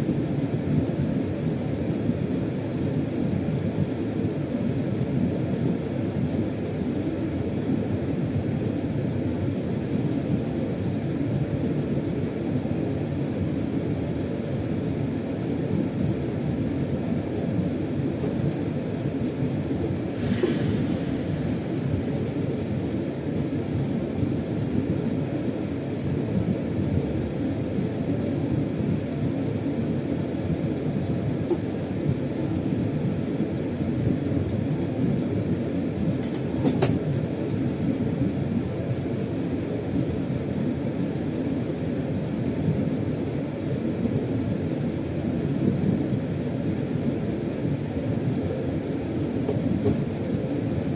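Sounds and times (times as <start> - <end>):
freight train low rumble: 0.0 - 50.9.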